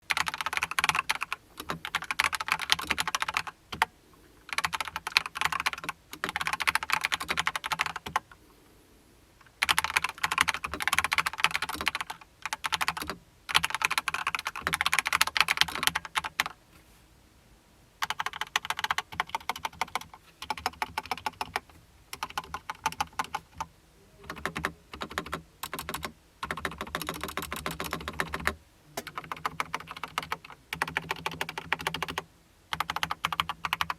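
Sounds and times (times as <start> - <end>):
mechanical keyboard keystrokes clacking: 0.1 - 3.9, 9.6 - 16.5, 24.3 - 32.2.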